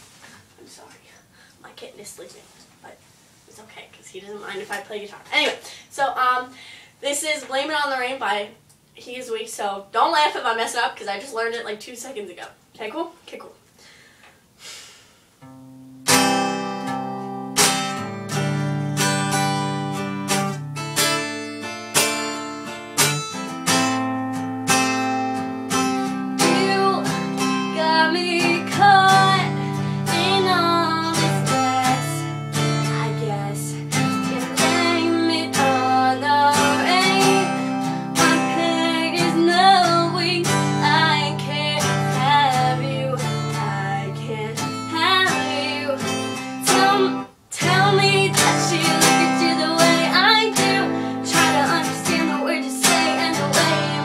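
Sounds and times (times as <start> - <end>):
acoustic guitar strumming chords: 15.4 - 54.0.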